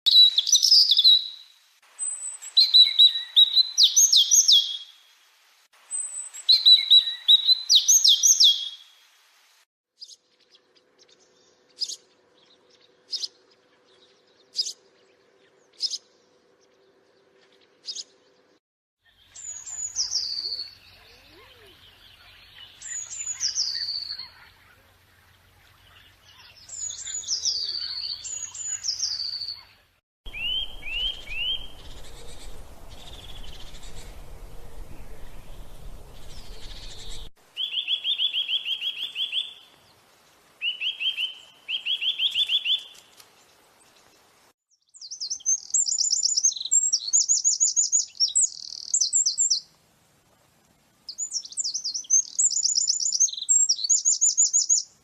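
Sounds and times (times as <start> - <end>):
rising bird song phrases: 0.1 - 5.1, 5.9 - 8.9, 10.0 - 44.1, 44.7 - 49.8, 51.1 - 55.0
soft bird chatter: 10.0 - 40.0
faint steady hum: 30.3 - 37.3
falling whistled bird phrases: 30.3 - 39.6, 40.6 - 43.0, 44.9 - 49.6, 51.2 - 54.9.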